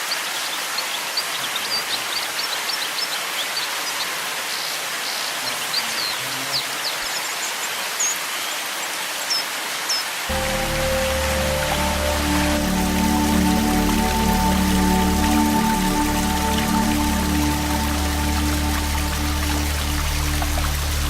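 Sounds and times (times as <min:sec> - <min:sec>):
music: 0:10.3 - 0:21.0
waterfall rushing: 0:10.3 - 0:21.0.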